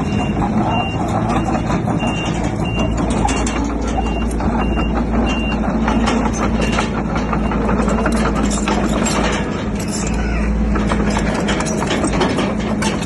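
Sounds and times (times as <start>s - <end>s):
reverse alarm beeping: 0.0s - 5.7s
diesel engine running: 0.0s - 13.0s
metallic clanking: 0.0s - 13.0s.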